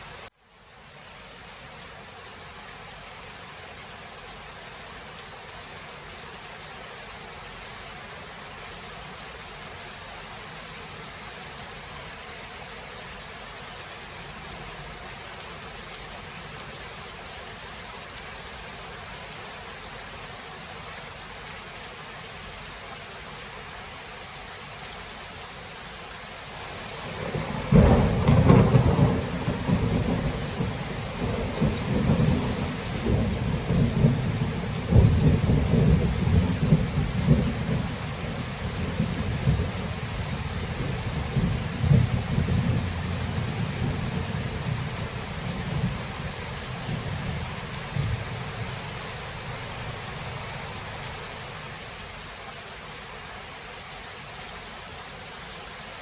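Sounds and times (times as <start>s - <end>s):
rain hiss: 0.0s - 56.0s
thunder rumbling: 26.7s - 51.8s.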